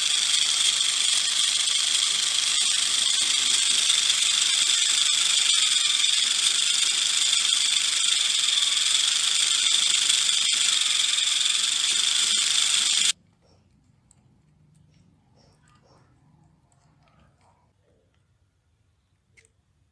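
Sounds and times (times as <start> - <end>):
loud hissing rattle: 0.0 - 13.2.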